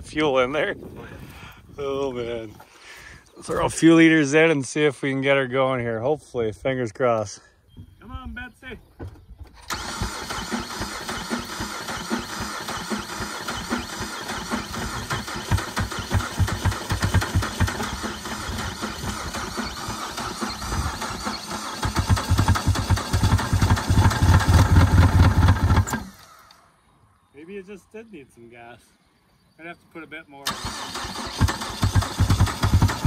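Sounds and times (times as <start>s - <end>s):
car engine cranking and running: 9.5s - 26.2s, 30.4s - 33.0s.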